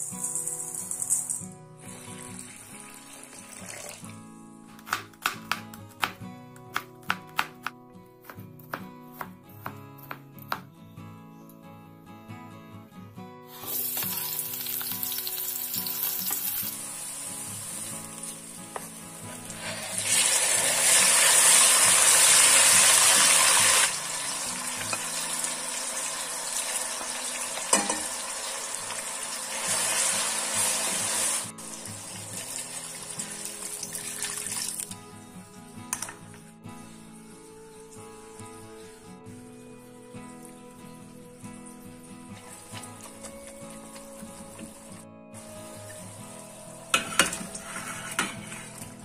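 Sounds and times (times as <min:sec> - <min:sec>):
food sizzling in hot oil: 0:00.0 - 0:04.0, 0:13.5 - 0:34.9, 0:46.9 - 0:48.8.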